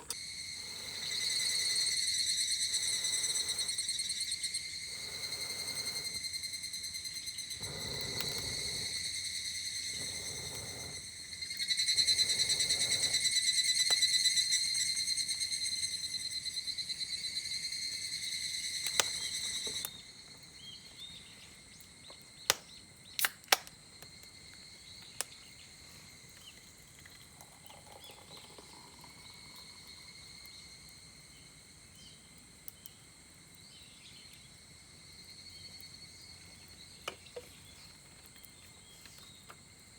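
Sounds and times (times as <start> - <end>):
cicada chorus buzzing: 0.0 - 23.2
faint insect drone: 0.0 - 39.9
sharp clicks: 22.5 - 23.8.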